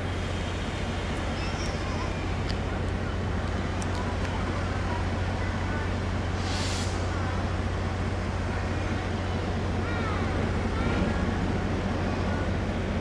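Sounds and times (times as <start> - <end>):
locomotive engine humming: 0.0 - 13.0
short hiss: 6.4 - 7.1.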